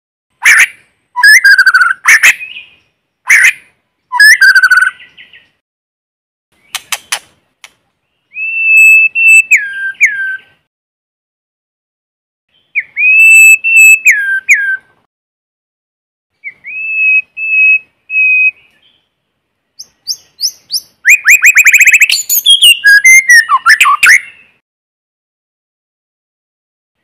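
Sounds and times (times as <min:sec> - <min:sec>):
songbird whistling and warbling: 0:00.4 - 0:05.6, 0:08.1 - 0:10.7, 0:12.5 - 0:15.0, 0:16.4 - 0:19.0, 0:19.8 - 0:24.6.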